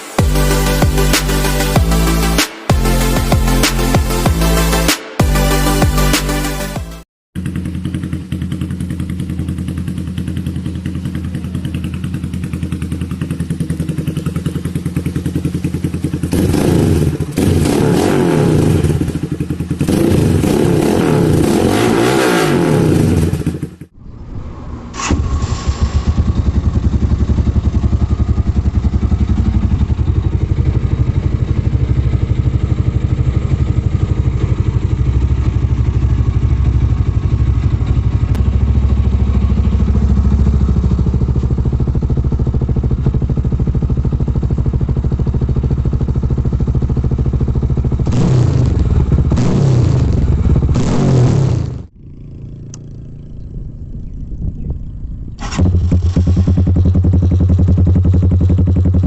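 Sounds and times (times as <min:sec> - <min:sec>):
motorcycle engine idling and revving: 0:00.0 - 0:59.0
deeper idling engine: 0:23.5 - 0:50.9, 0:51.6 - 0:59.0.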